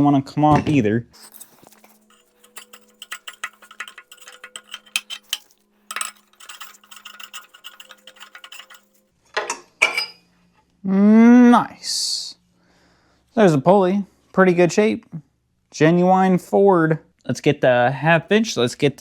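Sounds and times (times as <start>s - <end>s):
ratchet clicking: 1.3s - 9.0s.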